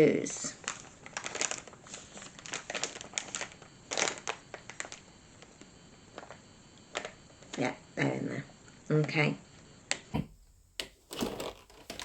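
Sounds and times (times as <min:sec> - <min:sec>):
plastic packet crinkling: 0:00.6 - 0:05.0.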